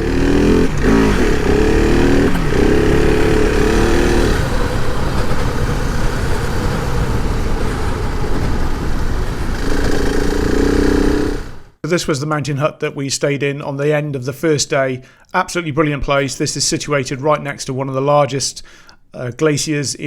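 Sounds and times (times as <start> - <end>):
motorcycle engine running: 0.0 - 11.8
steady rush of noise: 0.0 - 11.8.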